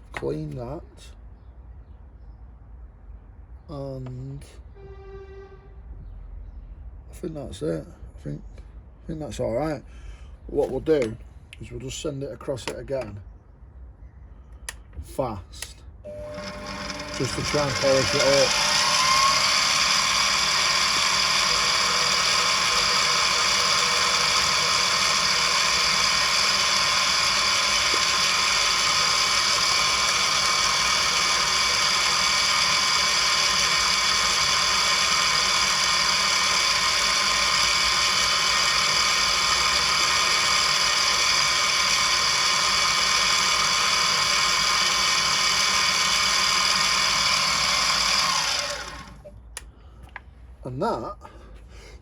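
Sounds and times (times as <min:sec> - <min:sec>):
milling machine whining: 0:16.1 - 0:49.3.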